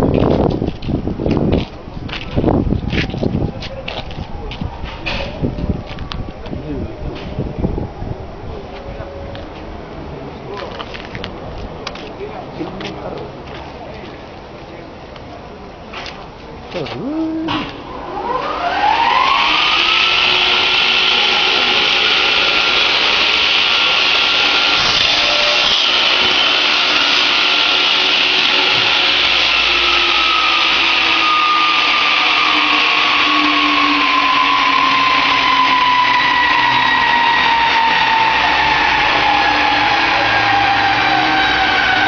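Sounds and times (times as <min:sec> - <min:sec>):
power tool motor whining: 0:17.0 - 0:42.0.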